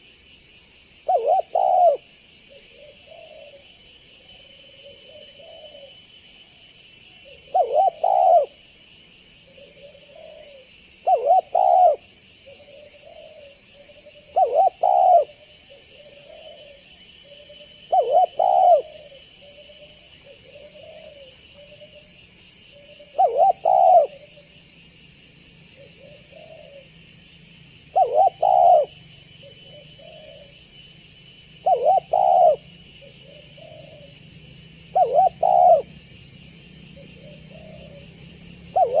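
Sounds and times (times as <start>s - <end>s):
high insect drone: 0.0s - 39.0s
dove cooing: 1.0s - 3.6s, 4.2s - 6.0s, 7.2s - 8.6s, 9.5s - 22.1s, 22.7s - 24.5s, 25.8s - 26.9s, 27.9s - 30.6s, 31.6s - 36.0s, 37.0s - 39.0s.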